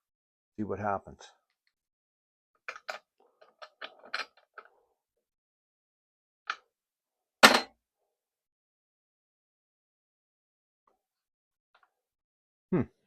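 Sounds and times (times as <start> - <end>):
metal tools clicking and rattling: 2.7 - 4.7.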